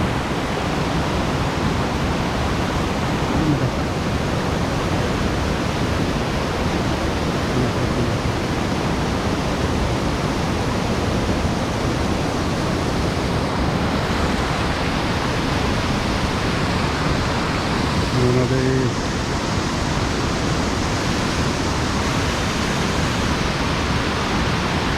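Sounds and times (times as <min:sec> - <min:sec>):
stream water rushing: 0:00.0 - 0:24.9.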